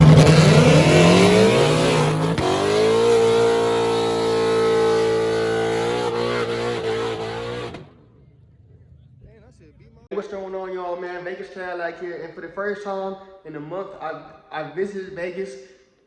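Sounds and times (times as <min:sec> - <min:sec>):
car engine accelerating hard: 0:00.0 - 0:09.4
gear change: 0:00.0 - 0:09.6.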